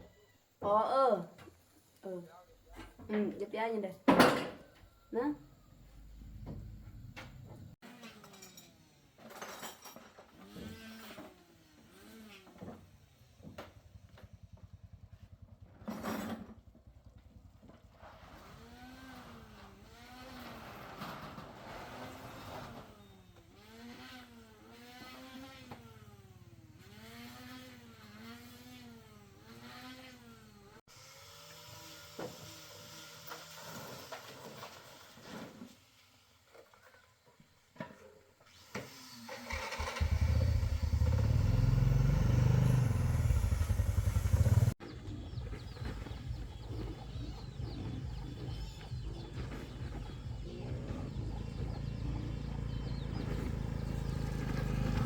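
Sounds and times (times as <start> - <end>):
quieter engine rumble: 4.7 - 7.8, 39.5 - 55.0
loud pulsing engine: 39.5 - 44.8, 45.4 - 55.0.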